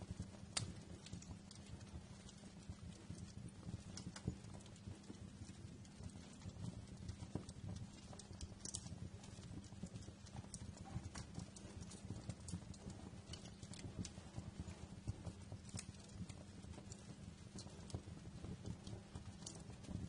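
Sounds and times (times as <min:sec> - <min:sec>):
low rumble of burning logs: 0:00.0 - 0:20.0
wood fire crackling: 0:00.0 - 0:20.0.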